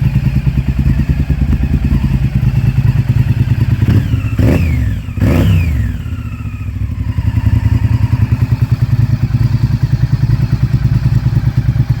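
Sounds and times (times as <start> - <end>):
motorcycle engine blip and idle: 0.0 - 12.0.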